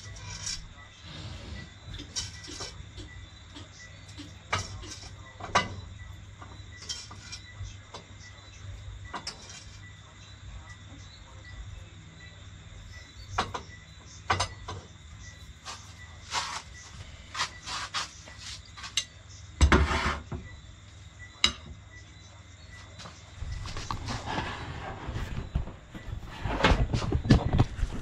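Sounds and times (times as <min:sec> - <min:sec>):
cutlery and dishes clattering: 0:01.9 - 0:05.9, 0:06.8 - 0:08.1, 0:09.1 - 0:09.9.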